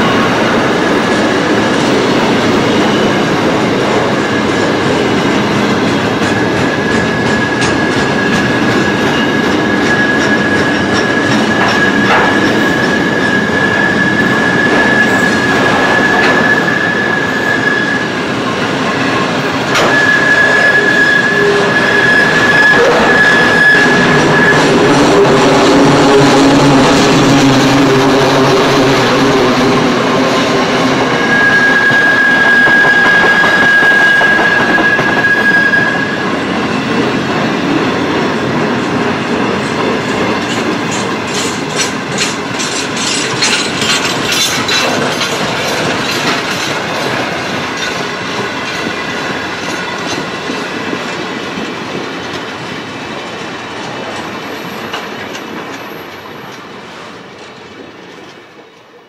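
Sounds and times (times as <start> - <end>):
high wheel squeal: 6.4 - 37.0, 40.5 - 50.2
wheels clicking over rail joints: 39.6 - 52.6.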